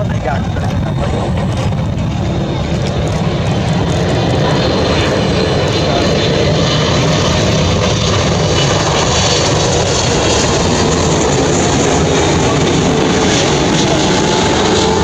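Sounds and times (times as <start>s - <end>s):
faint whine-like tone: 0.0s - 3.2s
airliner engines running: 0.0s - 15.0s.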